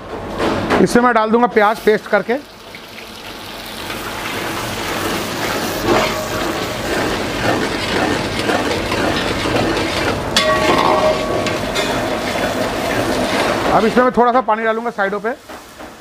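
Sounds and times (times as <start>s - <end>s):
onion paste sizzling in a pan: 1.8s - 10.2s, 11.1s - 16.0s
spatula scraping a pan: 5.0s - 13.7s.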